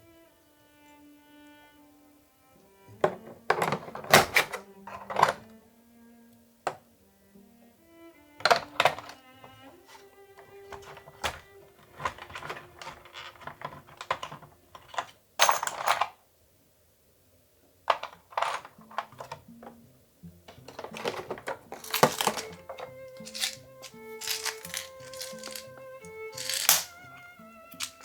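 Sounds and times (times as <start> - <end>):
soft background music: 0.0 - 15.0, 18.3 - 28.0
rustling: 8.4 - 15.2, 20.4 - 28.0
small hard parts clicking: 8.4 - 16.1, 17.9 - 19.8, 20.4 - 28.0.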